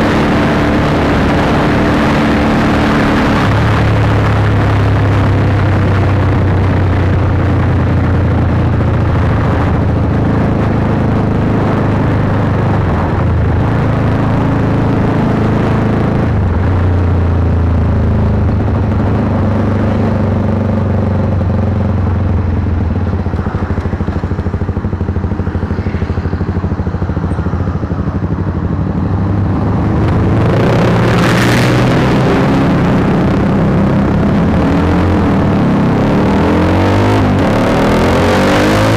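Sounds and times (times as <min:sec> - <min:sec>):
motorcycle engine: 0:00.0 - 0:38.9
brief rushing noise: 0:22.4 - 0:28.6.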